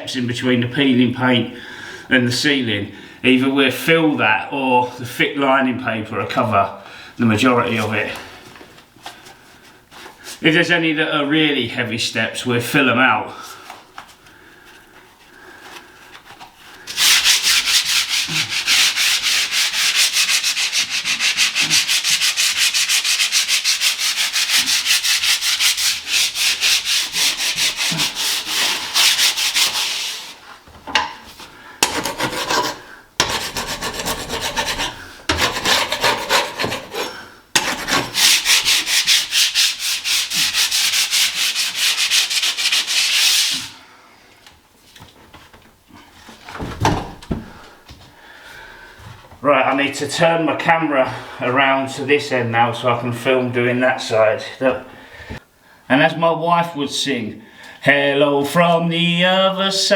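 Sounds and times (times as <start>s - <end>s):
sandpaper rubbing on ceiling: 16.8s - 30.4s, 31.8s - 43.8s.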